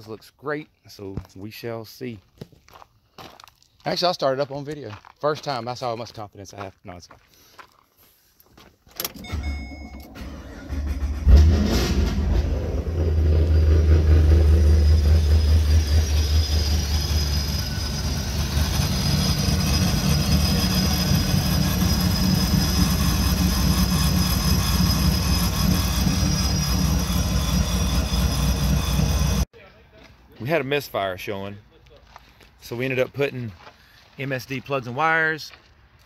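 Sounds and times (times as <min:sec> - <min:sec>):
car engine running and idling: 0:09.2 - 0:29.5
starter cranking: 0:15.2 - 0:29.4.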